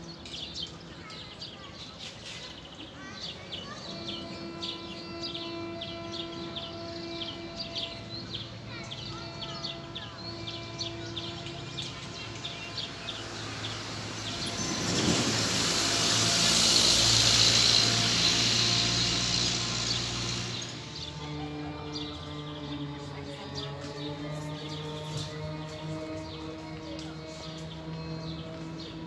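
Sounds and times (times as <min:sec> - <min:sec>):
small birds chirping: 0:00.0 - 0:29.0
rush of noise: 0:11.5 - 0:21.5.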